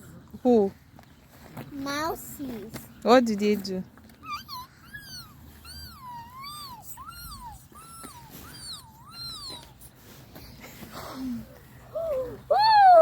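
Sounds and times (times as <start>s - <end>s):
child making squeaks: 4.3s - 9.9s.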